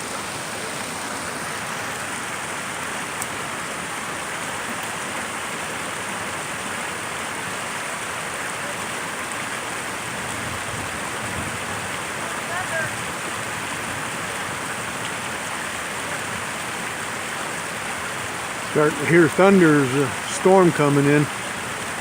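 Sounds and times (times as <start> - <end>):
creek rushing: 0.0 - 22.0.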